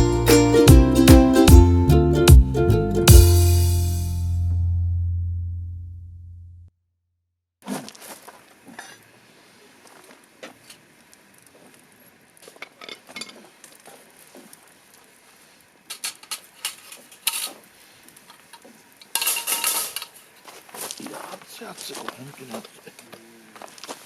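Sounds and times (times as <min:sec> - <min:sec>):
metal cookware clattering: 0:19.2 - 0:20.1.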